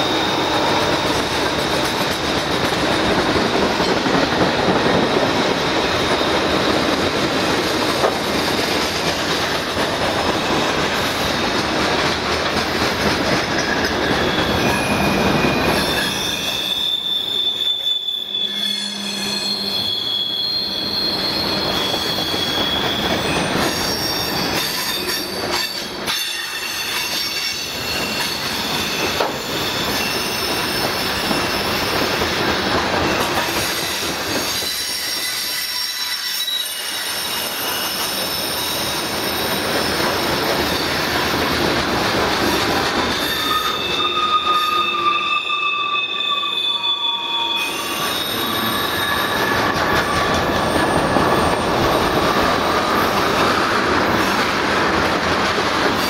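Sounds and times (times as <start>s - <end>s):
high-pitched wheel squeal: 0.0s - 2.0s, 13.6s - 31.8s, 33.1s - 41.6s, 42.5s - 54.4s
wheels rolling on rails: 0.0s - 16.8s.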